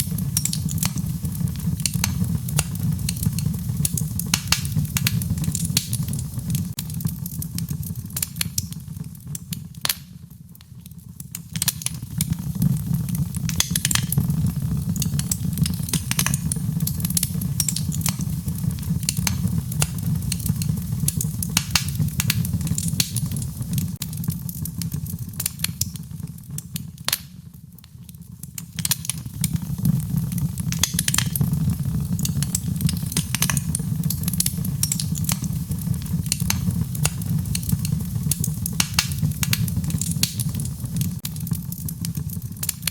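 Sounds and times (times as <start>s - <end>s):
gentle rain: 0.0s - 42.9s
wood fire crackling and popping: 0.0s - 42.9s.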